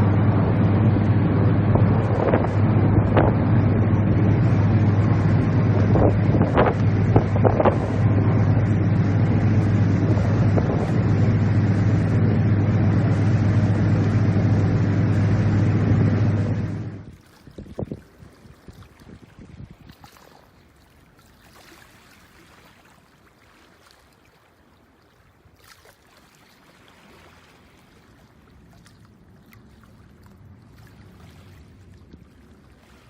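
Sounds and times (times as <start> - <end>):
ferry engine droning: 0.0 - 17.1
wind buffeting microphone: 0.0 - 20.1.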